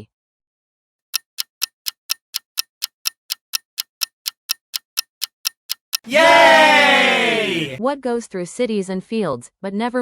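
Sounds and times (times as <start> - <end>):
clock ticking: 1.1 - 6.3.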